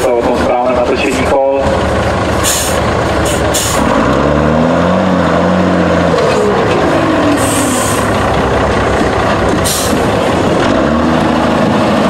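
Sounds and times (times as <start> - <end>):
diesel truck engine revving: 0.0 - 12.0.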